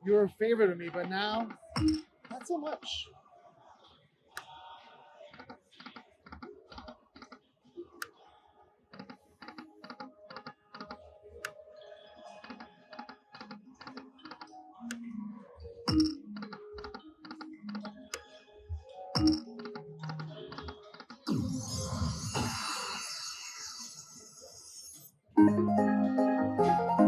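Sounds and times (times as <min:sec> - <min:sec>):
slot machine music: 0:25.4 - 0:27.0.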